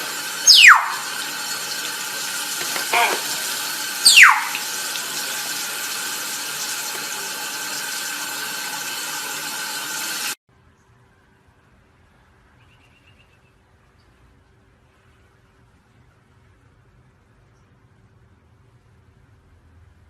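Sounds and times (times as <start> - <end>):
tap water running: 0.0 - 10.4
parrot whistle falling in pitch: 0.4 - 1.2, 4.0 - 4.7.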